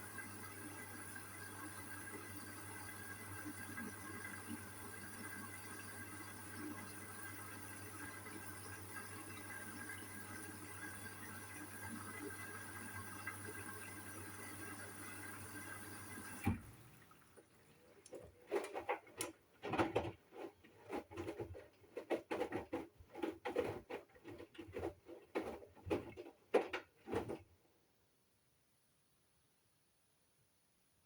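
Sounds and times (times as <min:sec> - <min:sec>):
water running into washing machine: 0:00.0 - 0:27.5
wet laundry sloshing and thudding: 0:18.1 - 0:27.5.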